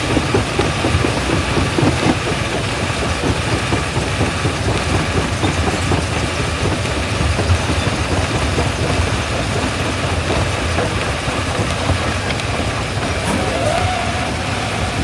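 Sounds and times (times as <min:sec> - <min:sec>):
rock crusher rumbling and grinding: 0:10.3 - 0:15.0.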